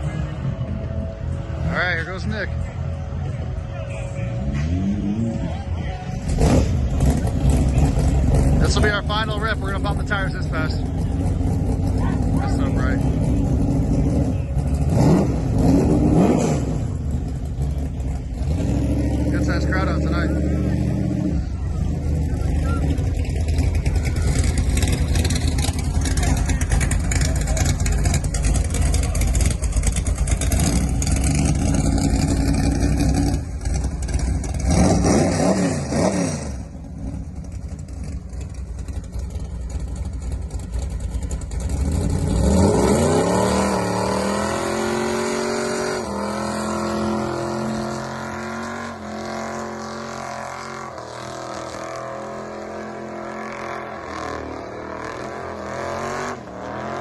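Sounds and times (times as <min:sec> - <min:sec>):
engine revving hard: 0:06.3 - 0:09.3, 0:14.8 - 0:16.9, 0:29.4 - 0:36.7, 0:41.7 - 0:57.0.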